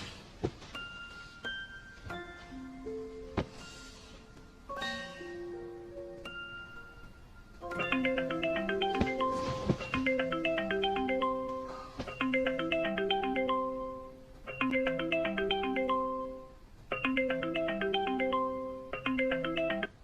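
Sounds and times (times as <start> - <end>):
marimba-like phone ringtone: 7.6 - 20.0.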